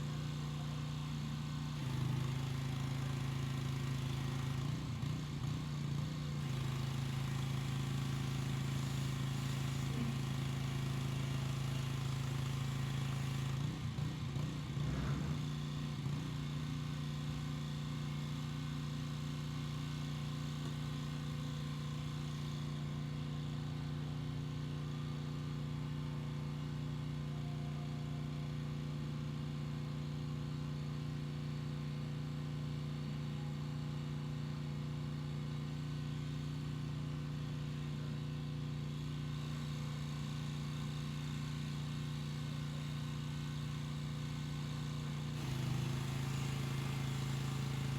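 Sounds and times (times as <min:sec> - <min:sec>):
pressure washer engine hum: 0:40.2 - 0:47.9.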